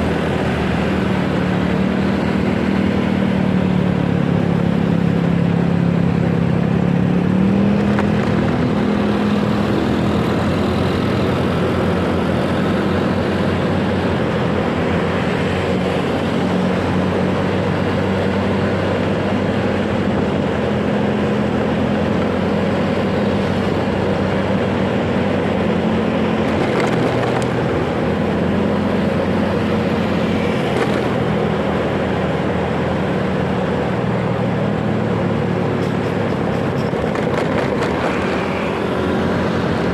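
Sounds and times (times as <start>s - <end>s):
steady rushing noise: 0.0s - 39.9s.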